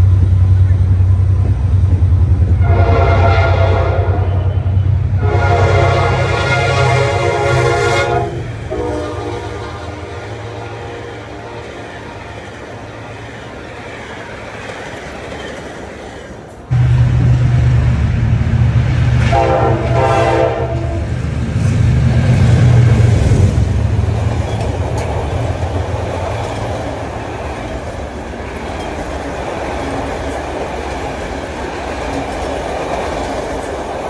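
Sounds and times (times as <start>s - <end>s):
diesel locomotive engine: 0.0s - 34.0s
train wheels on rails: 0.0s - 34.0s
train horn blasts: 2.6s - 12.3s, 16.7s - 18.0s, 19.2s - 21.1s.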